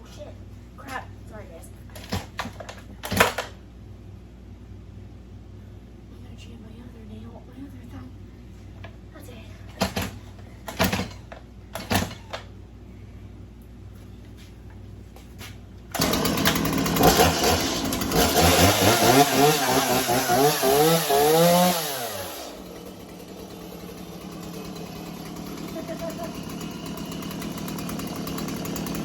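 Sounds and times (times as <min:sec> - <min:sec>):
chainsaw engine revving and idling: 0:15.9 - 0:29.0.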